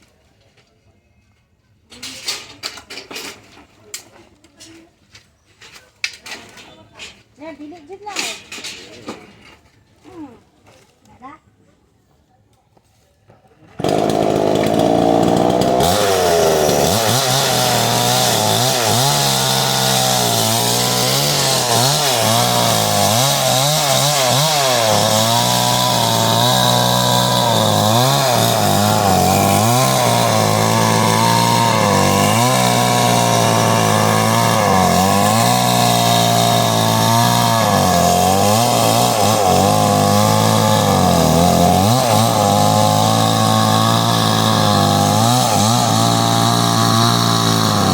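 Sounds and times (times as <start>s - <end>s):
chainsaw cutting wood: 13.8s - 47.9s.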